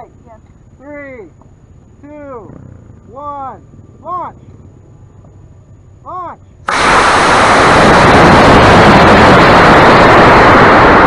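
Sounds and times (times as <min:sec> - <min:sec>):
rocket motor rushing hiss: 0:06.6 - 0:11.0.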